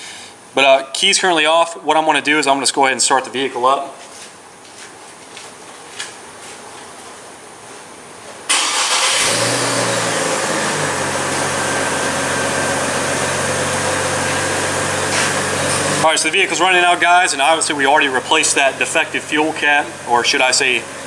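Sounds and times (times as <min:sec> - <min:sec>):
car engine starting and idling: 0:08.5 - 0:21.0.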